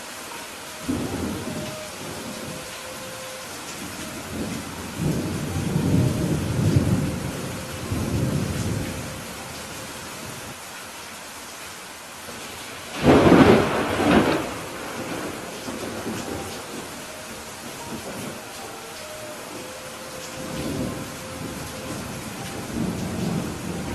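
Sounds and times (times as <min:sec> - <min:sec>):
steady rain: 0:00.0 - 0:23.9
rolling thunder rumble: 0:00.8 - 0:10.5, 0:12.9 - 0:23.9
sharp thunderclap: 0:13.0 - 0:16.8.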